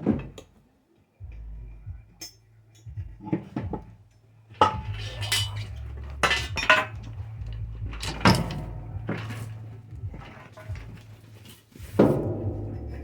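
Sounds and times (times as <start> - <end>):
steady low hum: 1.2 - 13.0
steel parts clanking: 4.6 - 11.6.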